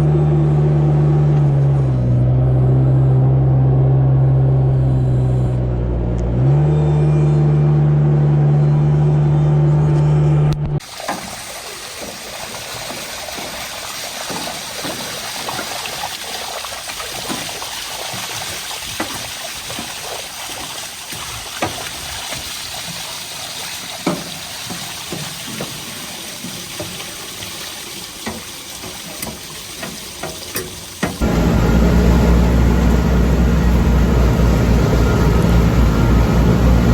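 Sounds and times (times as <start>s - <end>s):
water rushing: 10.8s - 36.9s.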